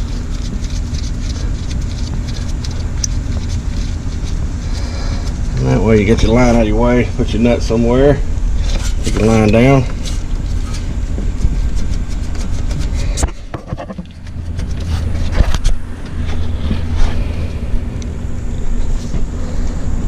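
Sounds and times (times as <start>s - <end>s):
low engine-like hum: 0.0s - 20.0s.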